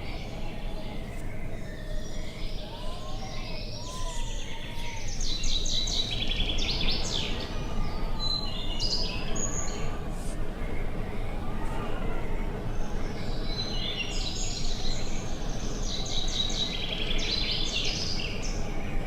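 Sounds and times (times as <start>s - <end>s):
rising and falling whistles: 0.0s - 4.0s
birds calling and singing: 0.0s - 19.0s
low rumble of wind: 0.0s - 19.0s.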